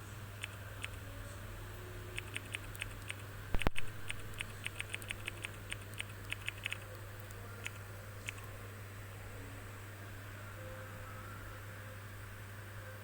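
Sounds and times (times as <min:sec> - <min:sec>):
typing on phone keyboard clicks: 0:02.2 - 0:06.8.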